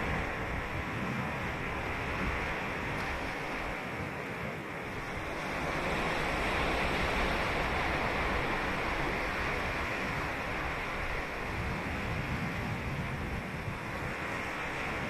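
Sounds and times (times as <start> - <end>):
ocean waves breaking on beach: 0.0 - 15.0.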